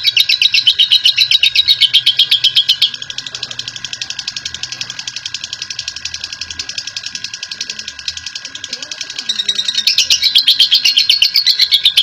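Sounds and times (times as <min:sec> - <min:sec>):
lovebird chattering trill: 0:00.0 - 0:12.0.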